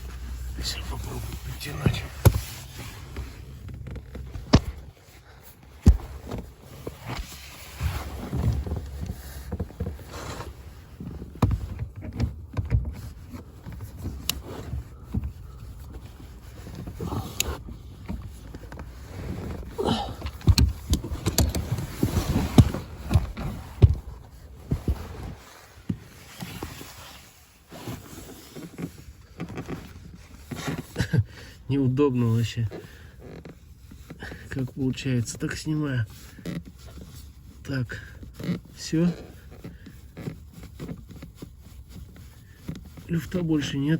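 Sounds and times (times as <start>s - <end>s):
microphone rubbing and bumping: 0.0s - 31.5s.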